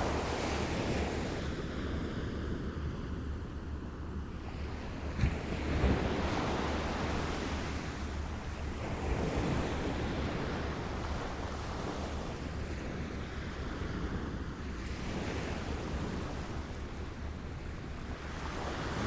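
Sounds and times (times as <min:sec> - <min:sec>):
small waves lapping at shore: 0:04.3 - 0:19.0.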